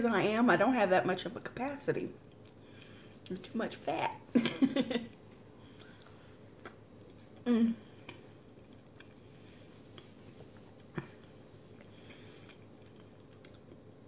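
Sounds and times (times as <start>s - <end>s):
person chewing with closed lips: 5.6s - 14.0s
low humming voice: 7.4s - 8.2s.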